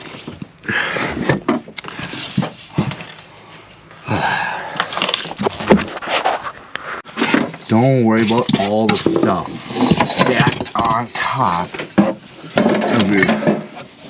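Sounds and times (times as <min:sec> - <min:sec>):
stored items clunking and knocking: 0:00.0 - 0:03.9, 0:07.0 - 0:14.0
box scraping: 0:04.8 - 0:14.0.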